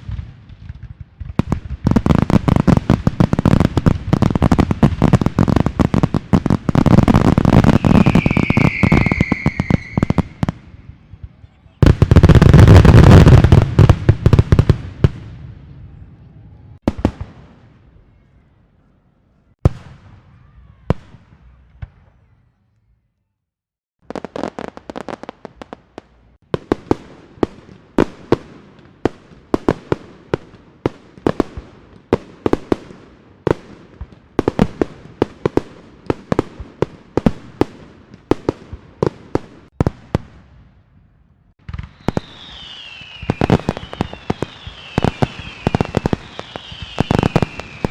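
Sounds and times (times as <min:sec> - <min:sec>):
firecrackers rapid cracks: 0:00.0 - 0:10.6, 0:41.6 - 0:47.9
firework burst with crackling: 0:00.0 - 0:15.4, 0:41.6 - 0:47.9
firework bangs: 0:00.0 - 0:16.0, 0:16.8 - 0:17.8, 0:41.6 - 0:47.9.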